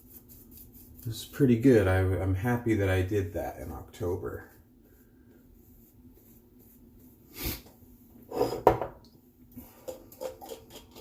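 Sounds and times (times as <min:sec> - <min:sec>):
soft rubbing rustle: 0:00.0 - 0:01.7, 0:02.5 - 0:08.3.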